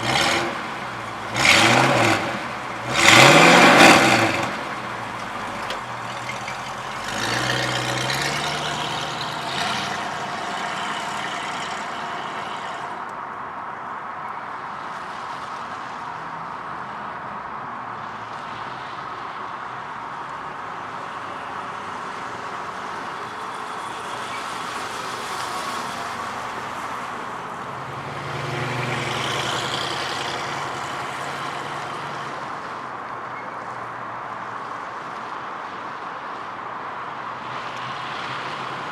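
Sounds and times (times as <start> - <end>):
car engine revving: 0.0 - 13.1.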